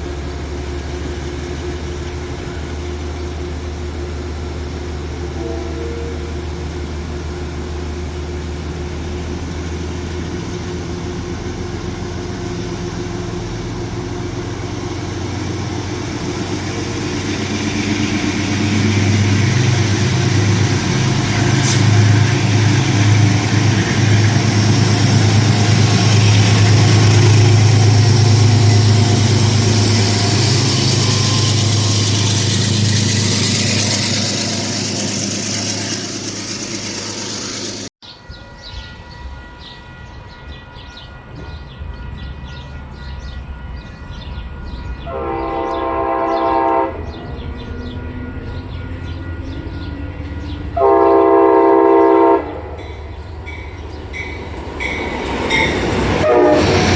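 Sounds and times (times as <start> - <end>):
locomotive engine running: 0.0 - 37.9, 44.4 - 56.9
hiss: 16.1 - 27.4.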